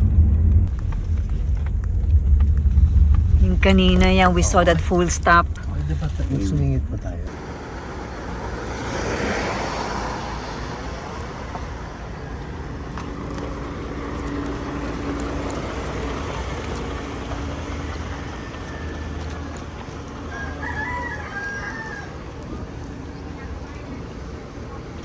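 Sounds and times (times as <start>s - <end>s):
vehicle engine and road rumble: 0.0s - 25.0s
rooster crowing: 17.7s - 22.3s.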